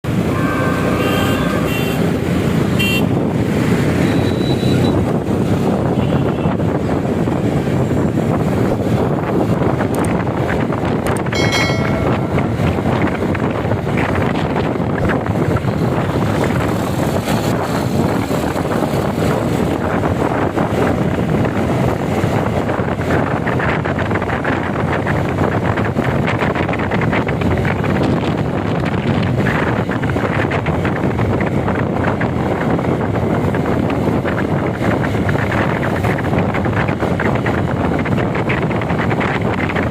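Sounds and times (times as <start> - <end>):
road traffic noise: 0.0 - 39.9
wind rushing over microphone: 0.0 - 39.9
motorcycle engine: 0.1 - 22.6.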